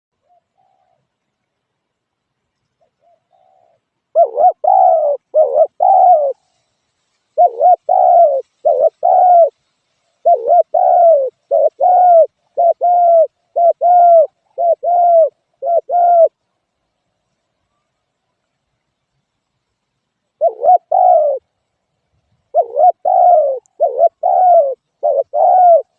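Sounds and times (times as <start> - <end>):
dove cooing: 0.2 - 1.1, 2.8 - 6.4, 7.4 - 9.6, 10.2 - 16.4, 20.4 - 21.6, 22.5 - 25.9.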